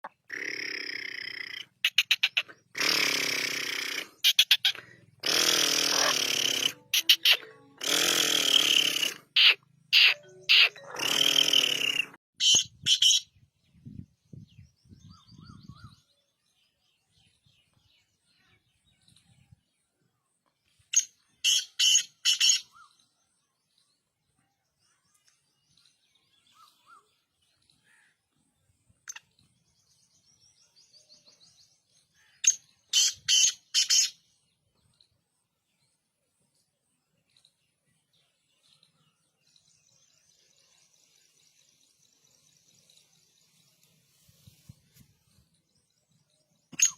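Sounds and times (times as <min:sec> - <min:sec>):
faint bird chirps: 0:00.1 - 0:46.9
francolin calling: 0:00.3 - 0:13.2.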